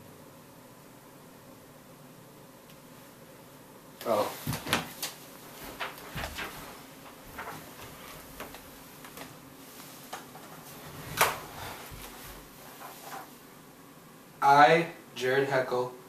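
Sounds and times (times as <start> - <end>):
objects knocking and rustling: 4.4 - 9.3.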